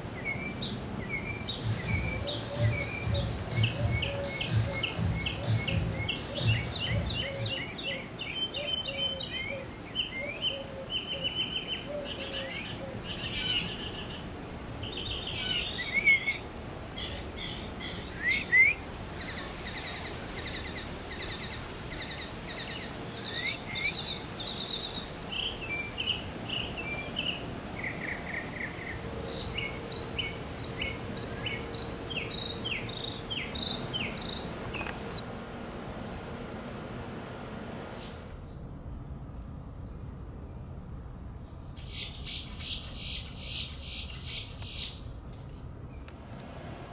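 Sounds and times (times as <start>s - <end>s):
small birds chirping and singing: 0.0s - 35.2s, 41.4s - 46.1s.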